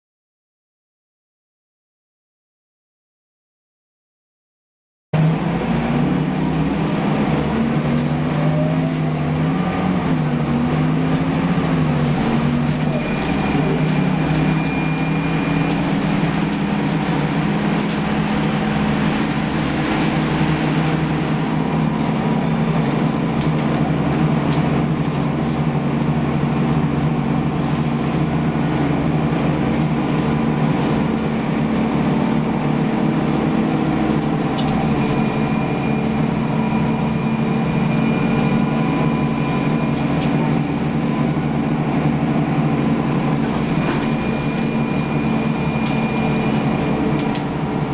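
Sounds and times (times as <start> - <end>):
bus engine running: 5.2 - 47.9.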